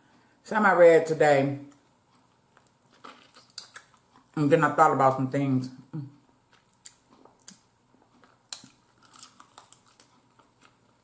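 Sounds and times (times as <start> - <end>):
chewing chicken wing: 2.1 - 4.4, 6.5 - 11.0.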